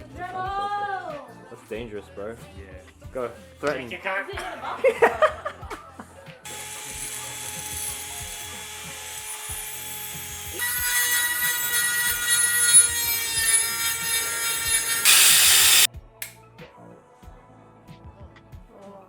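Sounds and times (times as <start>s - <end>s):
power tool cutting steel whine: 6.5s - 15.9s.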